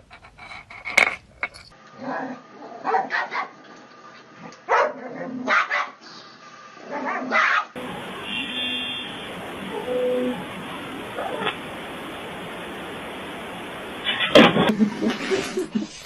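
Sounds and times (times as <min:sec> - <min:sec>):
dog barking: 0:02.1 - 0:03.6, 0:04.7 - 0:06.0, 0:06.9 - 0:07.8.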